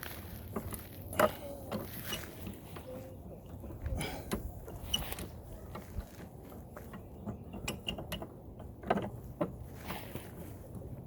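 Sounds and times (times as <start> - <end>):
hard parts clicking and scraping: 0.0 - 11.0.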